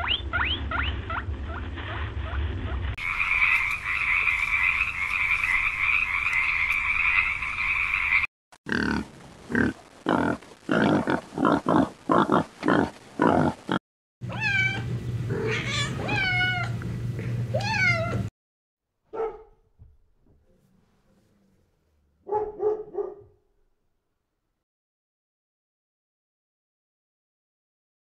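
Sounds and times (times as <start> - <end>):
low hum: 0.0 - 7.8
cat meowing: 14.3 - 16.8, 17.5 - 18.3.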